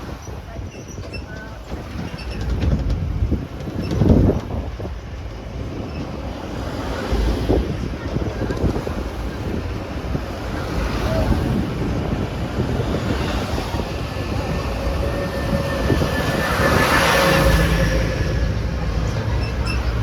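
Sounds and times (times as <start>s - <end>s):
wind on microphone: 0.0s - 20.0s
vehicle engine and road noise: 6.4s - 20.0s.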